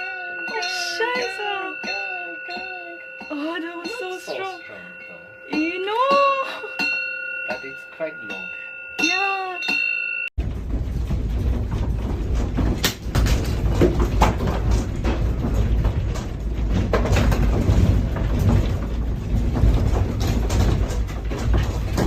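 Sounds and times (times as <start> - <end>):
knocks and rattles: 9.7 - 22.0.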